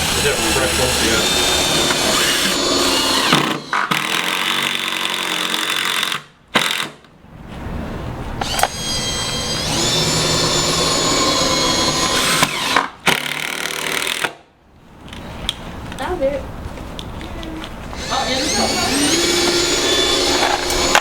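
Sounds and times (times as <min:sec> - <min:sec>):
power drill driving screws: 0:00.0 - 0:07.0, 0:08.4 - 0:14.4, 0:18.0 - 0:21.0.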